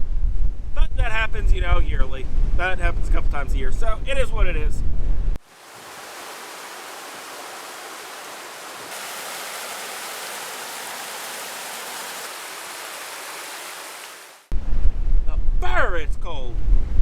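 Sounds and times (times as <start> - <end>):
creek water rushing: 5.4 - 14.5.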